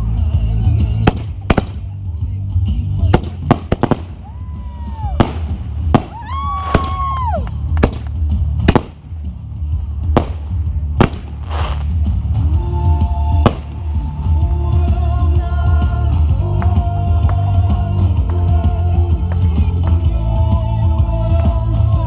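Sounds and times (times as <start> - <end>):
fireworks bangs: 1.1 - 1.9, 3.0 - 9.1, 10.2 - 12.1, 13.4 - 14.2.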